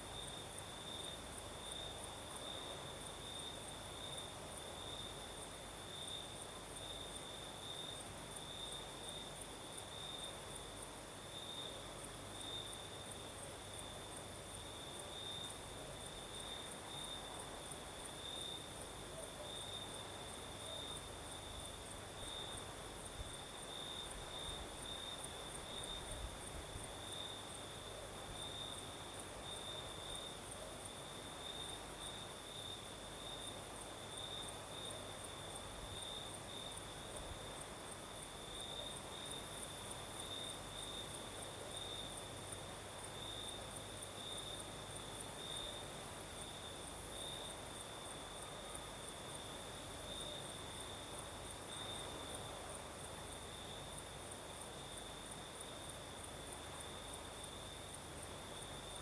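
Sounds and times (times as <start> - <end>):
crickets trilling: 13.7 - 59.0.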